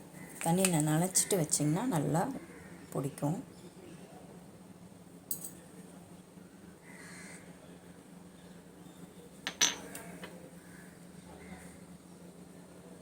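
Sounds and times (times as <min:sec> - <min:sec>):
metal lamps clinking: 0:09.5 - 0:10.3.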